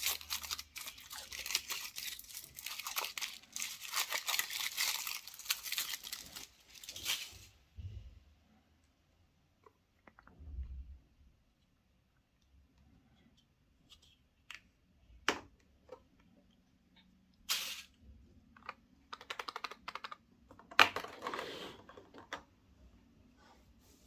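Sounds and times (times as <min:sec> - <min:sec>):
foil crinkling: 0:00.0 - 0:07.5
foil wrapper rustling: 0:00.0 - 0:07.5
plastic toy parts clicking: 0:18.6 - 0:21.4.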